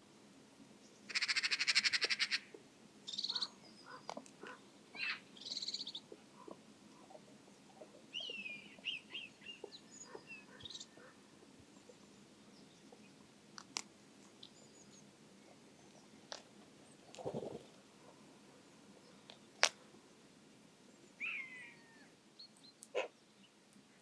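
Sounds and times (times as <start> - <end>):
harsh rattling bird call: 1.1 - 2.5.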